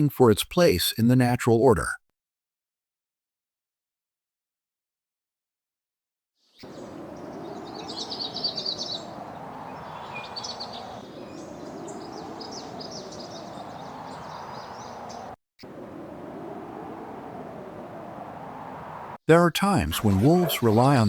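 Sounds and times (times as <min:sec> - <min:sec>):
small birds chirping: 0:06.4 - 0:21.0
outdoor background noise: 0:06.5 - 0:21.0.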